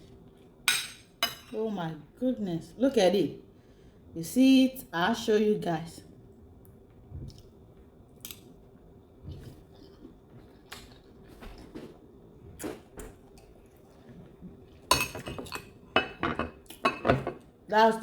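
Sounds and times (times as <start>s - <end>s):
cutlery clattering on plate: 14.9s - 17.4s.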